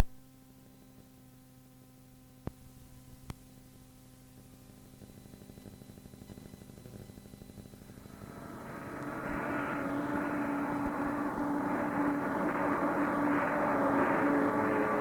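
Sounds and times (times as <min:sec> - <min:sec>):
engine drone: 0:07.4 - 0:15.0.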